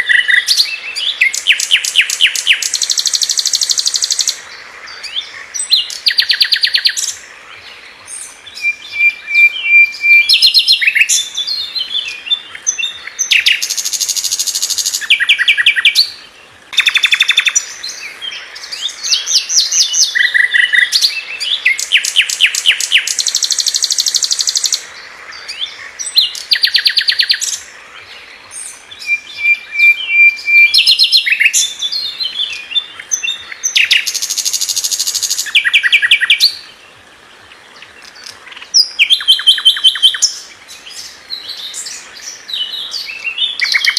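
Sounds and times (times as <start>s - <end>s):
bird singing rapid trills: 0.0s - 4.4s, 8.1s - 16.2s, 16.8s - 27.7s, 28.5s - 36.6s
whistled bird notes: 8.1s - 16.2s, 16.8s - 24.8s, 28.5s - 36.6s, 38.7s - 43.9s.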